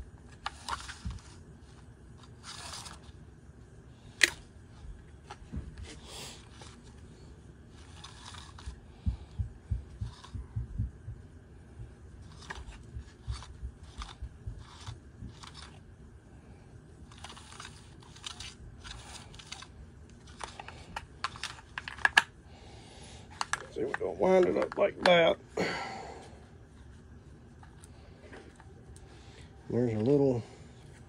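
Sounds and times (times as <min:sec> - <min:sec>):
small parts clicking and rustling: 0:00.2 - 0:03.2, 0:07.7 - 0:10.8, 0:12.2 - 0:15.8, 0:17.0 - 0:22.3, 0:23.3 - 0:25.3
soft low thuds: 0:08.7 - 0:15.4.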